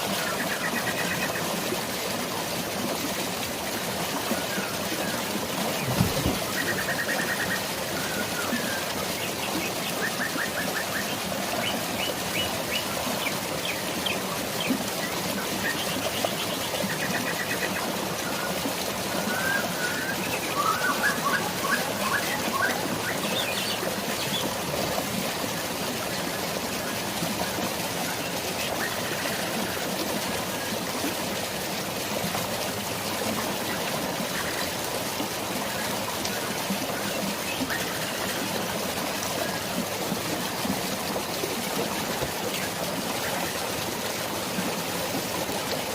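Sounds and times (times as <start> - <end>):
flowing water: 0.0 - 45.9
birds chirping and trilling: 19.3 - 24.5.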